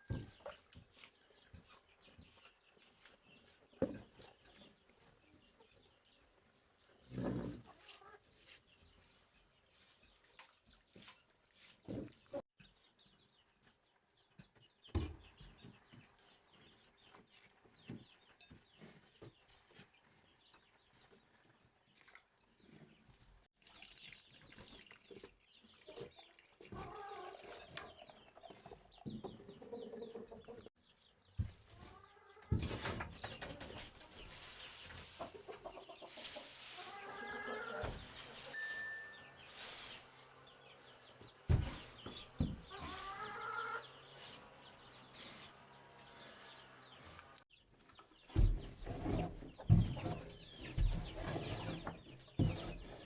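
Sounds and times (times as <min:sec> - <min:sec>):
chickens clucking: 0:00.1 - 0:09.1, 0:24.6 - 0:30.7, 0:31.3 - 0:53.0.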